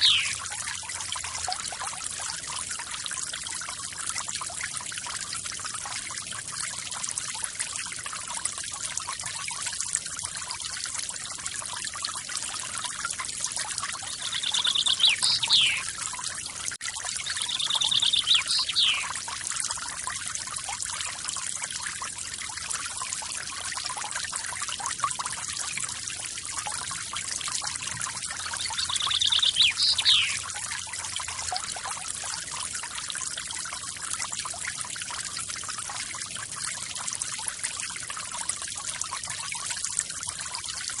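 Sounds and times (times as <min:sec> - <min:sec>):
songbird buzzy trill: 0:00.0 - 0:00.4, 0:14.1 - 0:15.9, 0:17.2 - 0:19.1, 0:28.4 - 0:30.4
waterfall splashing and trickling: 0:00.0 - 0:41.0.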